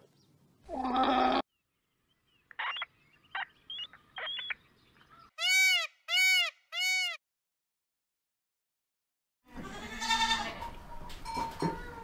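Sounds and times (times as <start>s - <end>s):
peacock calling: 2.2s - 7.2s.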